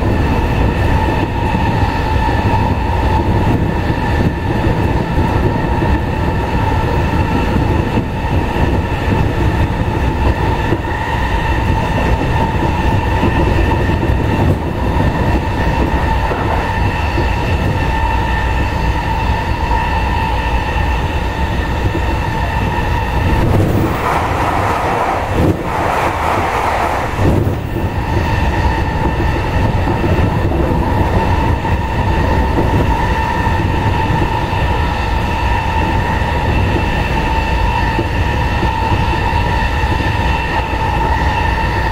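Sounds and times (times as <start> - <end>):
train wheel and rail rumble: 0.0 - 41.9
loud rushing noise: 22.8 - 28.6.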